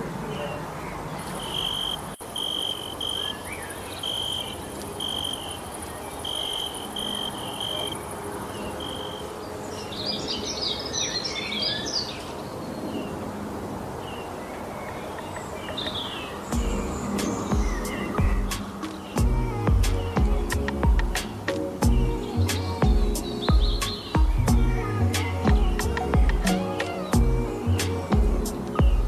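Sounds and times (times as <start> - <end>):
bird chirps: 0.3 - 13.2, 14.2 - 29.0
cricket chirping: 1.2 - 9.4
high insect hiss: 1.2 - 9.6.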